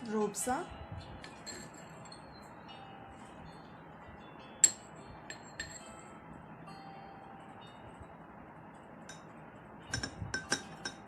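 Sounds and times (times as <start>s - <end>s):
spoon clinking against glass: 1.2s - 2.4s, 4.6s - 6.0s, 9.9s - 11.0s.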